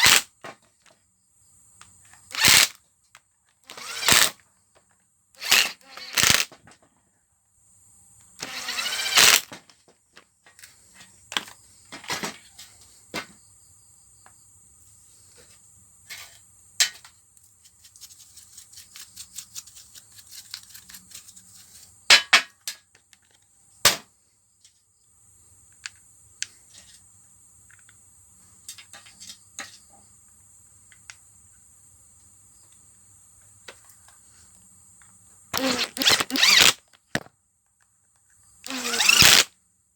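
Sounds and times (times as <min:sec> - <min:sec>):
hand tools clicking and knocking: 0:02.3 - 0:02.7, 0:35.6 - 0:37.3.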